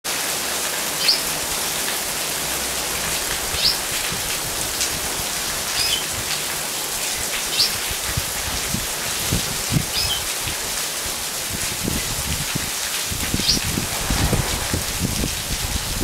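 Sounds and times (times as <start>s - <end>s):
heavy rain on pavement: 0.1s - 16.0s.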